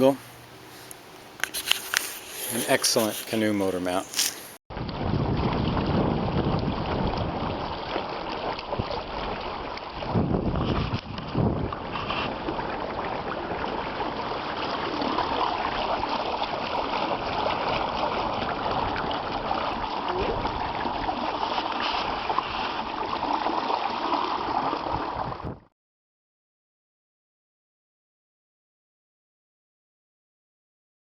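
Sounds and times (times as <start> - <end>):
wind noise on microphone: 4.2 - 23.3, 24.4 - 25.7
water rushing and splashing: 5.1 - 25.5.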